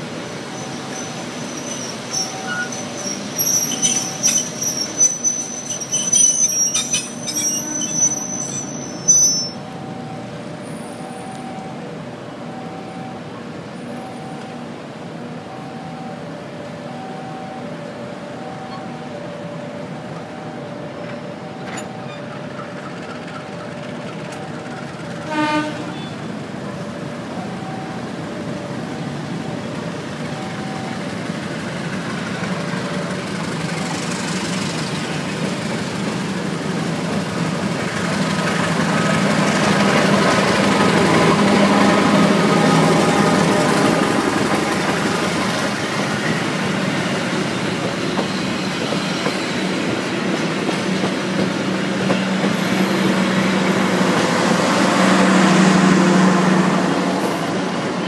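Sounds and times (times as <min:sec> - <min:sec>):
train coaches rolling past: 0:00.0 - 0:58.0
train horn toot: 0:07.3 - 0:09.6, 0:25.2 - 0:26.3.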